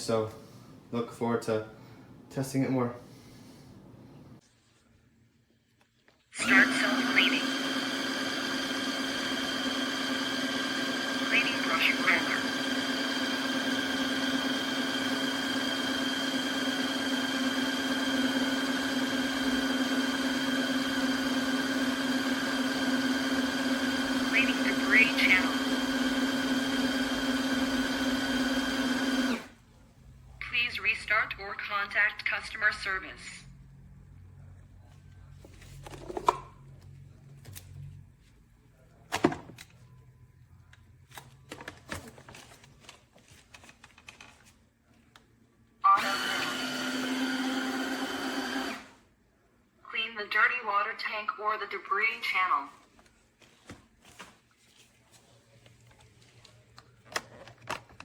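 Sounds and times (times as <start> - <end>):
vacuum motor humming: 6.4 - 29.6, 45.9 - 49.0.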